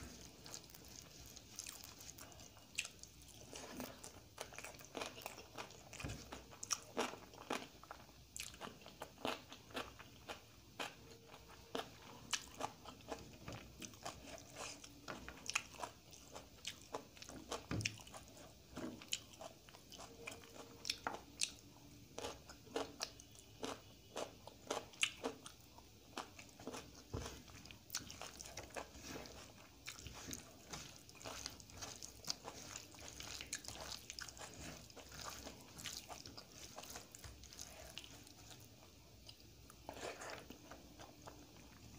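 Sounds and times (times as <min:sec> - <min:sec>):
chewing and crunching food: 0:00.0 - 0:41.9
fingers squishing food: 0:22.2 - 0:41.4.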